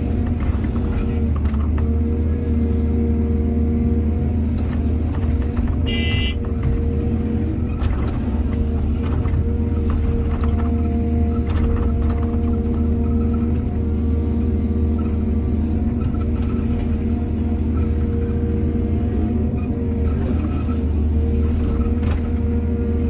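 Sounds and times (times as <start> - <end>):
excavator diesel engine: 0.0 - 23.0.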